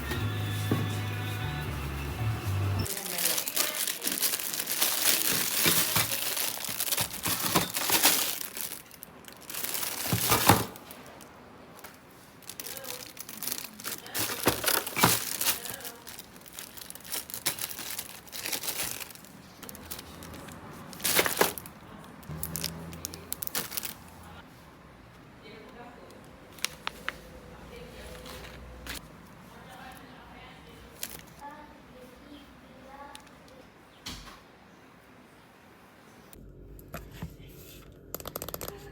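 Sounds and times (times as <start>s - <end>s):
packaging tearing and crinkling: 2.8s - 11.2s, 12.4s - 24.1s
sharp crackle of packaging: 2.8s - 24.4s, 30.9s - 31.4s.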